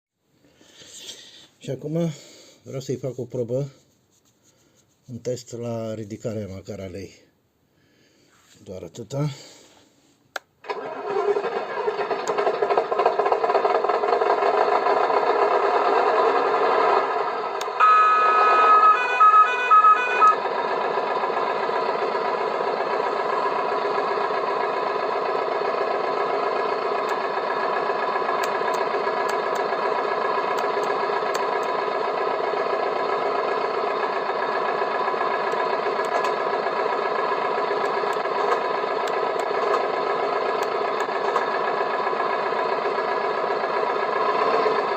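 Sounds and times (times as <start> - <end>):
toy crane motor humming: 11.9 - 44.9
short beeps: 17.8 - 20.4.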